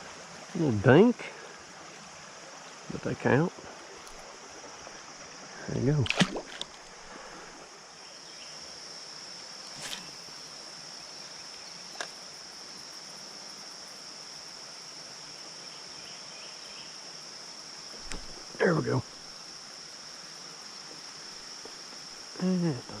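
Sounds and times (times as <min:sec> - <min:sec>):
creek water: 0:00.0 - 0:23.0
insect chorus: 0:00.0 - 0:23.0.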